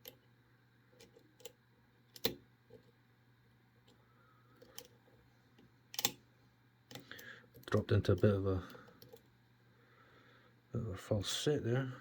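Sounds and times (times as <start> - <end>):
lock pick clicking in lock: 1.0 - 2.4, 5.9 - 6.2.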